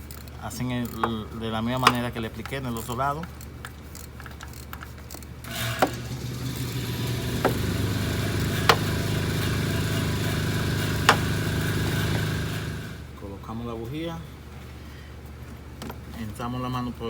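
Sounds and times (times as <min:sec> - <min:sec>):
engine starting and idling: 0:05.4 - 0:13.1.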